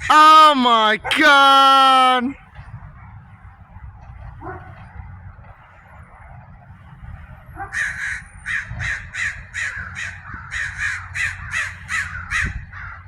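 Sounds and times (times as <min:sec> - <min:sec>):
crow cawing: 0:07.8 - 0:13.0.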